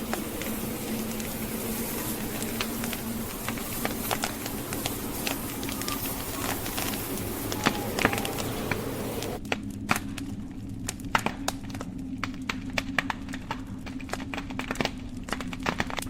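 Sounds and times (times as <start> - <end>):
hissing blizzard wind: 0.0 - 10.8
low rumble of flames: 0.0 - 16.0
wood fire crackling and popping: 0.0 - 16.0.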